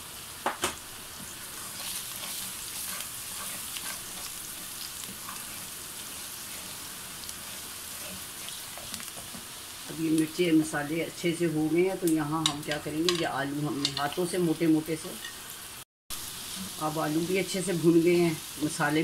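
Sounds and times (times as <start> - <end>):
onions sizzling in hot oil: 0.0 - 19.0
wooden spoon stirring: 1.6 - 9.6.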